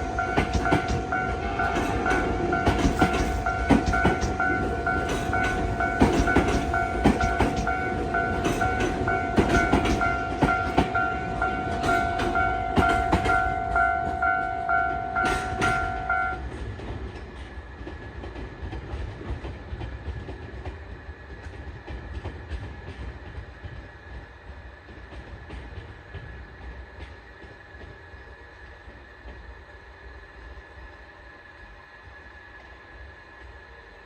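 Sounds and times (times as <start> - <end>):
two-note ringing tone: 0.0 - 16.4
train wheels clicking over rail joints: 0.0 - 29.6.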